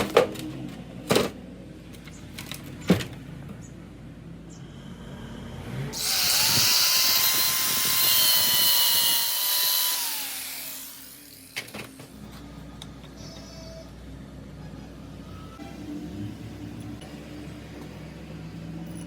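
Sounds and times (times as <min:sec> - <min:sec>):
small power tool whining: 0:05.9 - 0:11.8.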